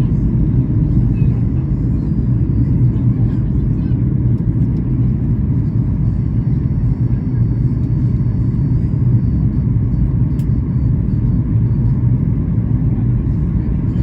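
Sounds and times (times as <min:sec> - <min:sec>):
aircraft cabin rumble: 0:00.0 - 0:14.0.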